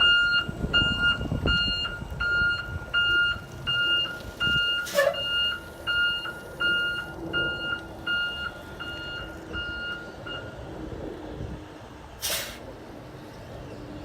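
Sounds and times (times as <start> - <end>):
bus reversing alarm beeping: 0.0 - 10.8.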